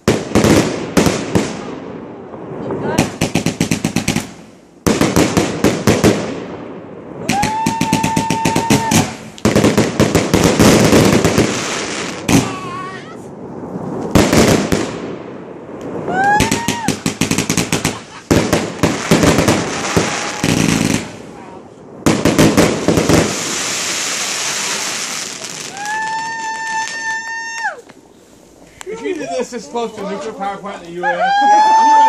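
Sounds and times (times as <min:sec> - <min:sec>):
firework shots and crackle: 0:00.0 - 0:28.9
rising firework whistle: 0:07.1 - 0:09.5, 0:15.7 - 0:21.6, 0:23.0 - 0:28.7, 0:31.1 - 0:32.0.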